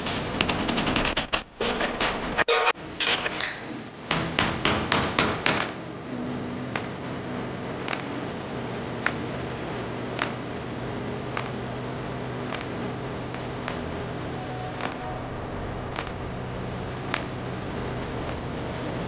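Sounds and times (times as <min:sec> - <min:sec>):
tapping on small wooden parts: 0:07.9 - 0:08.1.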